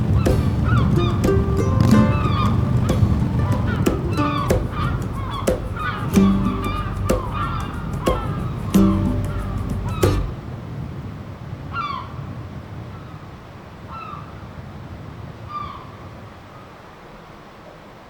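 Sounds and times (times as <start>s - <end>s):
bird calling: 0.0s - 10.4s
low background rumble: 0.0s - 10.6s.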